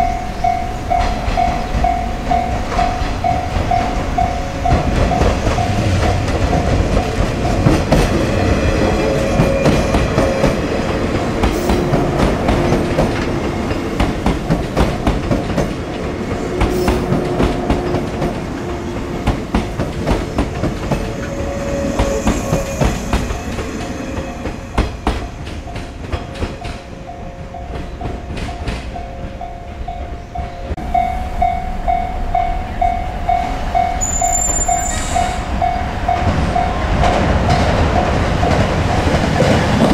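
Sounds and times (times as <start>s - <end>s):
train wheels clattering over joints: 2.6s - 29.4s.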